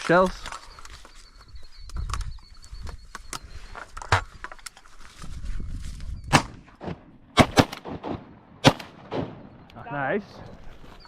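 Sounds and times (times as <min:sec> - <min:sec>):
shotgun shots: 0:06.3 - 0:09.6.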